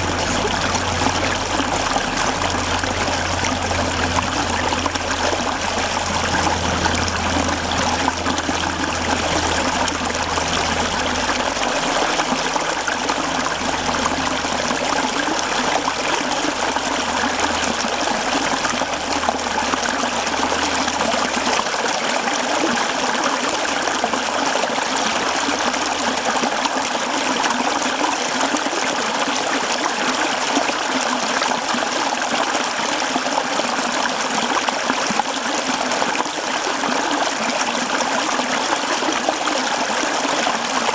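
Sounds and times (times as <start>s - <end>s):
low hum: 0.0s - 26.5s
stream flowing over rocks: 0.0s - 40.9s.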